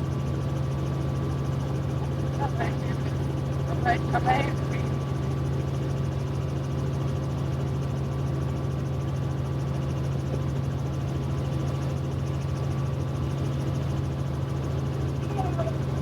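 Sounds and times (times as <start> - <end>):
helicopter engine and rotor drone: 0.0 - 16.0.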